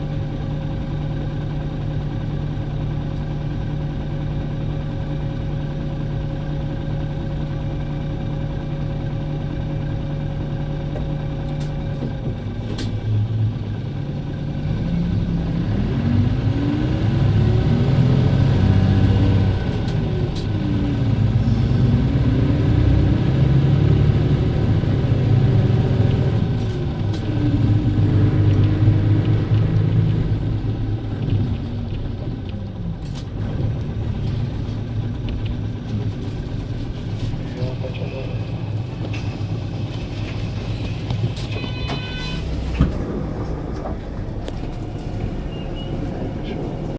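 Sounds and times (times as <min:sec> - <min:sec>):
bus diesel engine driving: 0:00.0 - 0:46.9
brief high-pitched tone: 0:41.5 - 0:42.6.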